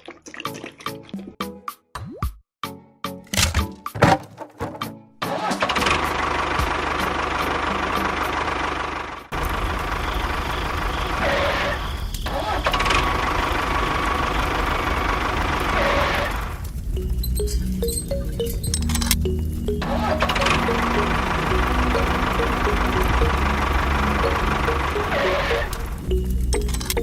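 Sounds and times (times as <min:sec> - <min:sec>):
sharp clicks: 0:17.3 - 0:19.3, 0:25.6 - 0:27.0
small motor running: 0:20.2 - 0:27.0.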